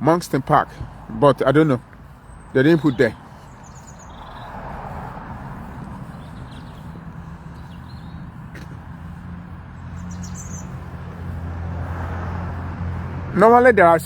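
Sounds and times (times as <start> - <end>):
traffic engine hum: 0.0 - 14.0
bird chirps: 2.1 - 4.6, 5.7 - 8.6, 9.8 - 11.4.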